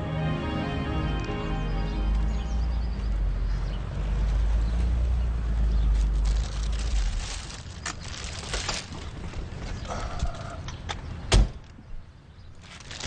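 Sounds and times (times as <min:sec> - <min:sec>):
car engine rumbling: 0:01.9 - 0:10.6.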